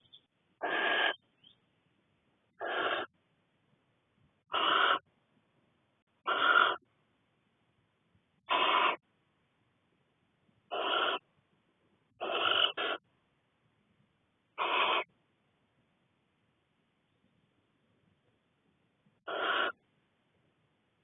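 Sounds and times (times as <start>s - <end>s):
owl chicks hissing calls: 0.6s - 1.2s, 2.5s - 3.2s, 4.5s - 5.1s, 6.2s - 6.9s, 8.4s - 9.0s, 10.7s - 11.3s, 12.1s - 13.0s, 14.6s - 15.1s, 19.2s - 19.8s.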